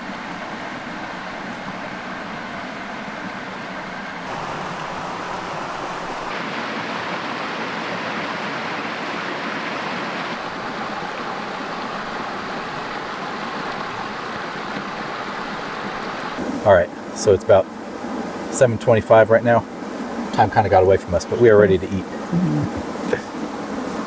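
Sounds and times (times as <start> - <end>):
creek rushing: 0.0 - 24.0.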